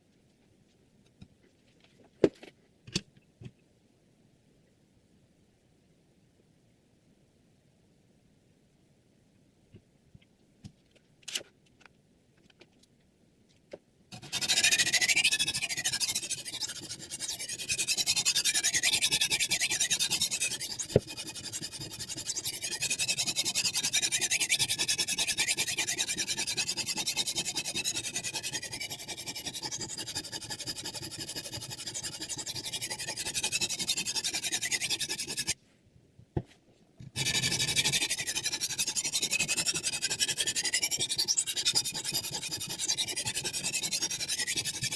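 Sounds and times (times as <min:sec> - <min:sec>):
sharpening stone scraping knife: 0:14.2 - 0:35.6, 0:37.2 - 0:44.9.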